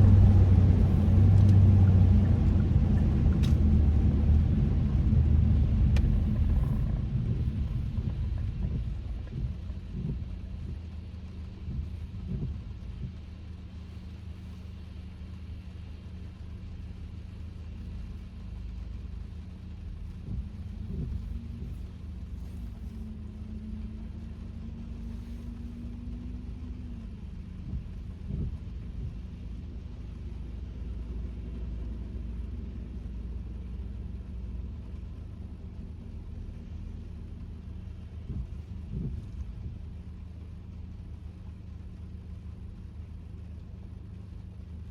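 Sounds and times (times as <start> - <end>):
car cabin engine and road noise: 0.0 - 44.9.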